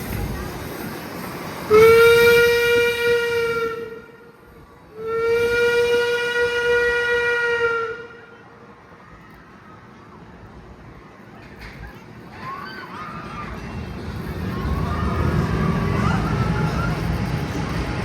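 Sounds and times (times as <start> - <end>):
steam locomotive whistle blasts: 1.7 - 4.3, 4.9 - 8.4.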